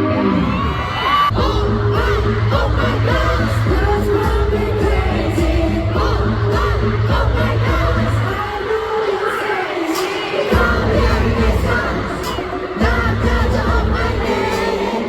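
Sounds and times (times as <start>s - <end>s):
crowd yelling: 0.0s - 3.9s
crowd singing along: 0.0s - 15.0s
pop song with heavy bass beat: 0.0s - 15.0s.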